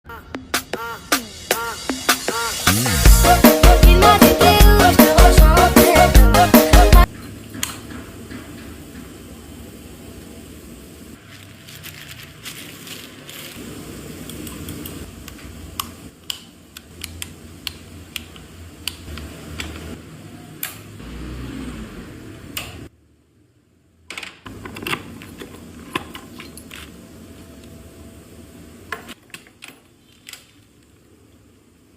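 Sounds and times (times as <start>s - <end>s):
tools clicking and knocking: 7.2s - 8.7s.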